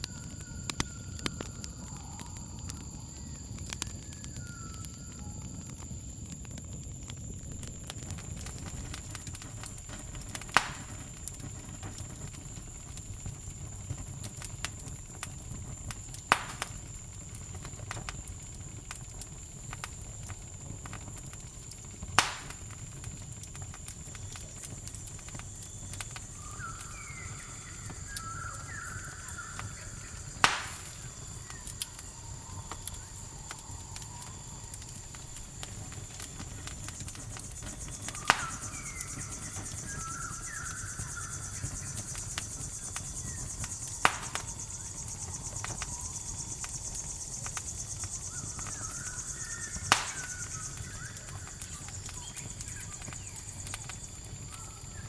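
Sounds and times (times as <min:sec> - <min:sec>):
campfire crackling: 0:00.0 - 0:55.0
crickets trilling: 0:00.0 - 0:55.0
sharp loud fire pops: 0:08.0 - 0:12.4, 0:14.4 - 0:17.0, 0:21.9 - 0:46.7, 0:47.4 - 0:53.9
chirping calls: 0:26.4 - 0:31.7.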